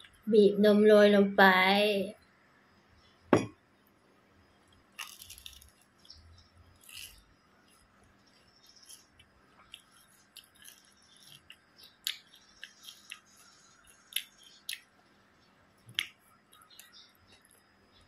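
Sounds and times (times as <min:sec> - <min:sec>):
crunchy bite: 0:04.6 - 0:15.0, 0:15.8 - 0:17.6
chewing crackling clicks: 0:04.7 - 0:06.2, 0:08.6 - 0:14.9, 0:15.8 - 0:17.6.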